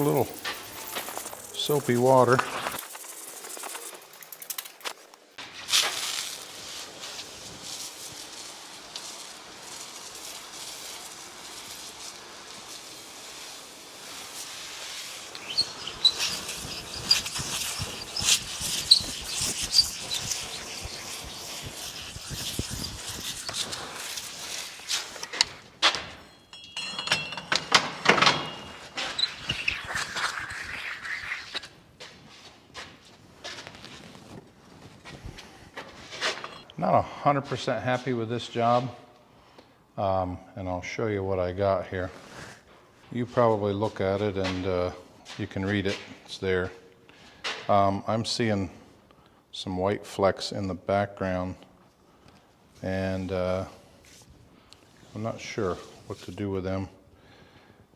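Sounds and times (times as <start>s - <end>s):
stone scrubbing wet granite: 0.0s - 4.8s, 5.7s - 25.4s, 29.1s - 31.8s.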